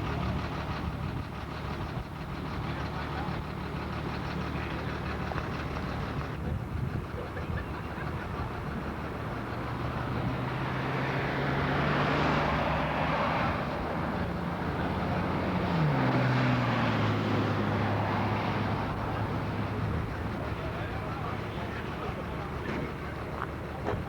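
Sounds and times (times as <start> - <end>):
passing vehicle engine hum: 8.0 - 24.0.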